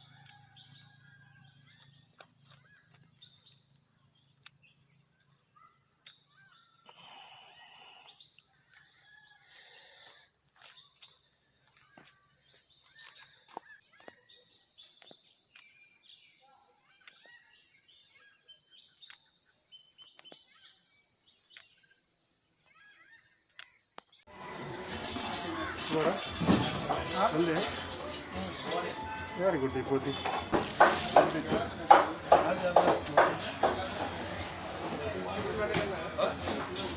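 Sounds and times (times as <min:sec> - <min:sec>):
insects trilling: 0:00.0 - 0:14.0, 0:22.1 - 0:35.5.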